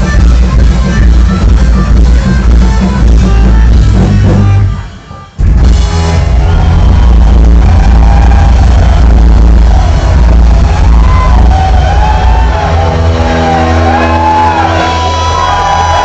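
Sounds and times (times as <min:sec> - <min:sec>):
heavy metal band playing: 0:00.0 - 0:16.0
ringing guitar tones: 0:00.0 - 0:16.0
crowd shouting: 0:05.9 - 0:16.0.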